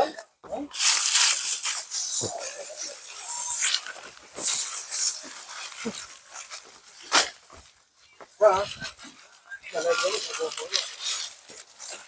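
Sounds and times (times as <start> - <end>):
elephants blowing through trunks: 0.7 - 7.5.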